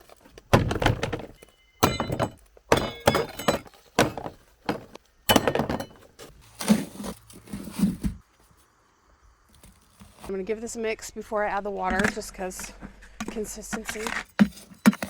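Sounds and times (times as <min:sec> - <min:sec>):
dull thunks: 0:00.5 - 0:06.3
rustling: 0:09.4 - 0:10.4.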